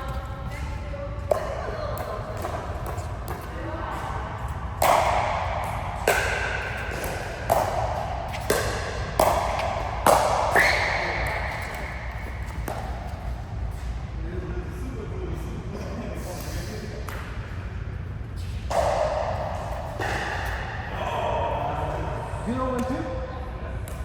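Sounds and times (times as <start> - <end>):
ball strikes echoing in hall: 0.0 - 24.0.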